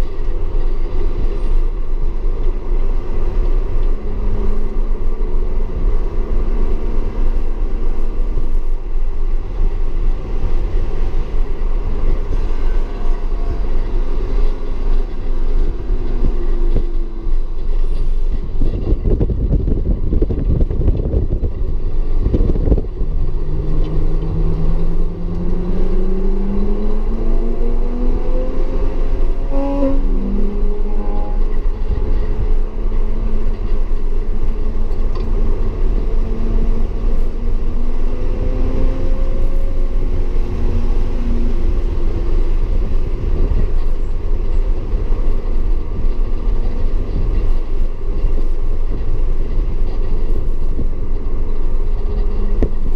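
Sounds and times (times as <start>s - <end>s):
car engine accelerating: 19.0s - 43.8s.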